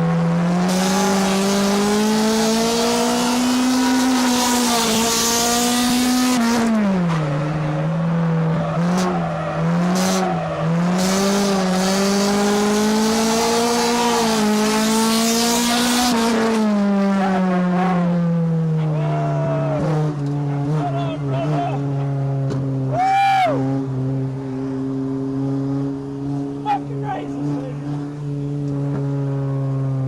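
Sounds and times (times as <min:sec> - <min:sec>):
race car engine: 0:00.0 - 0:30.0.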